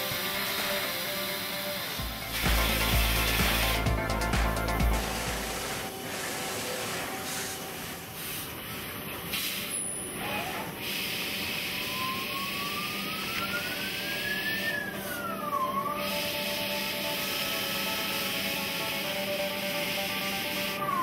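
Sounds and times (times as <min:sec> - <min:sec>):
whine rising in pitch: 0:00.0 - 0:06.3, 0:11.7 - 0:18.9
cnc machine machining noise: 0:00.0 - 0:21.0.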